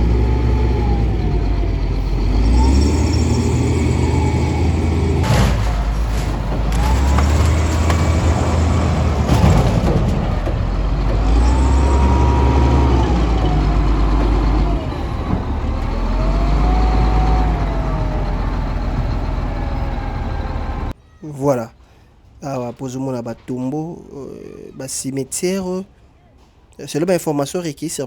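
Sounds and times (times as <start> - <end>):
engine whine: 0.0 - 20.9
heavy diesel engine running: 0.0 - 20.9.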